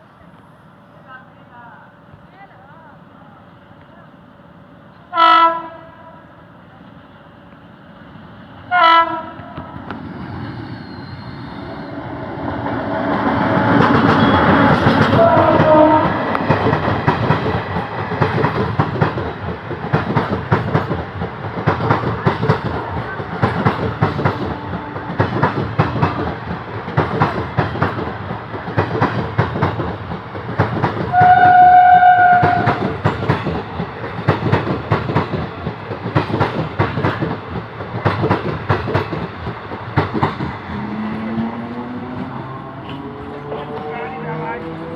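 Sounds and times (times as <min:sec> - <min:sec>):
train horn blasts: 0:05.1 - 0:06.2, 0:08.7 - 0:09.6, 0:13.1 - 0:16.4, 0:24.4 - 0:25.4, 0:31.1 - 0:32.8
train wheels clattering over rail joints: 0:13.3 - 0:31.5, 0:32.3 - 0:43.9.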